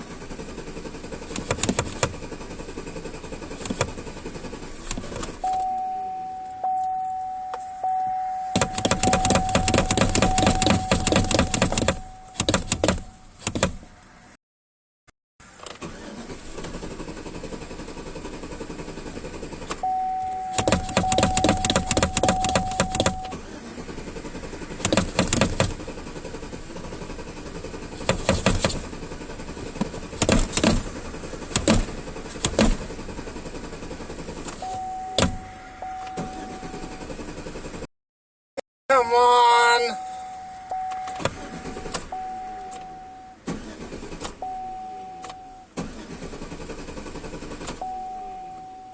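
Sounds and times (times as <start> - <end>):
car starter cranking engine: 0.0 - 14.1, 15.4 - 37.9, 40.0 - 48.9
steady high tone: 5.5 - 12.4, 38.9 - 43.4.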